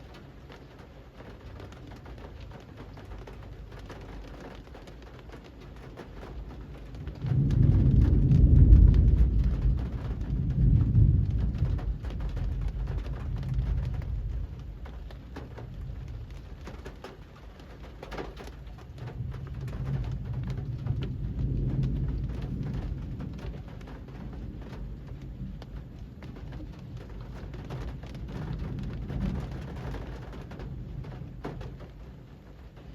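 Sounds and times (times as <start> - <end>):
steady rain on a street: 0.0 - 32.9
deep low rumble: 6.7 - 16.7, 18.7 - 32.0.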